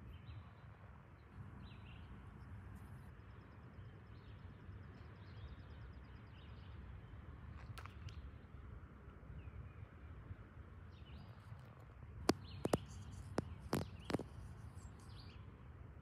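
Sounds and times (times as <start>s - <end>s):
birds chirping: 12.3s - 15.4s.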